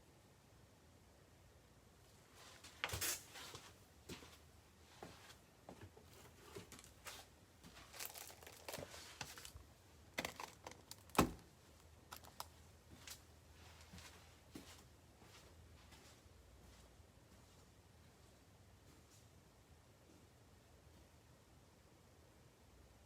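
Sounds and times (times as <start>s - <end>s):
packaging tearing and crinkling: 7.9s - 9.6s, 10.2s - 11.4s.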